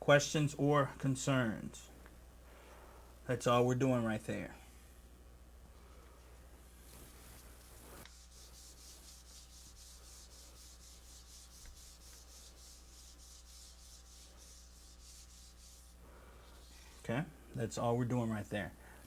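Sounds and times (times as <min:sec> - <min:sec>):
rhythmic rubbing: 0:08.0 - 0:16.0.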